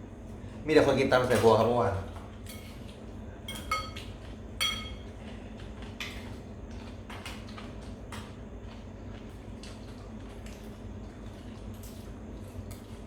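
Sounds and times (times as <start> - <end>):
cutlery and dishes clinking: 3.5 - 5.0.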